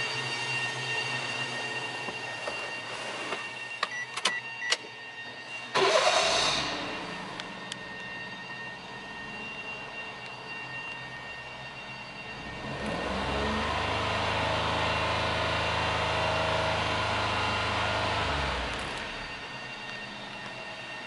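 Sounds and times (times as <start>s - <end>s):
car engine idling and revving: 5.8s - 21.0s.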